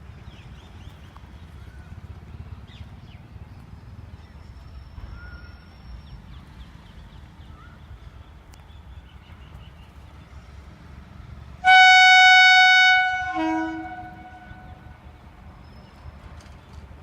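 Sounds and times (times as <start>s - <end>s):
locomotive horn blast: 11.6s - 15.0s.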